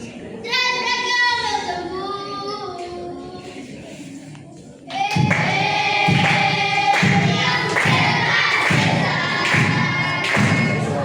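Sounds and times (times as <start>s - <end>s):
group singing: 4.9s - 11.0s
low drum beats: 5.1s - 11.0s.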